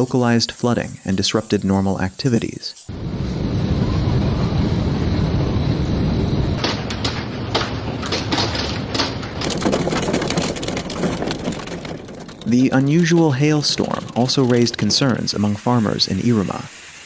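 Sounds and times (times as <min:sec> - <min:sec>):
wind: 0:00.0 - 0:17.0
sharp knocks: 0:06.6 - 0:15.2.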